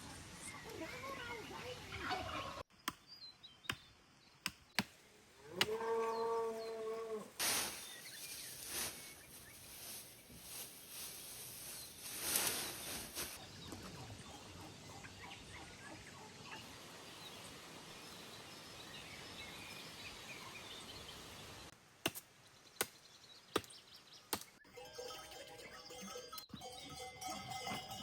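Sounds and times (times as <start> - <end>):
steady hiss: 7.4 - 13.4.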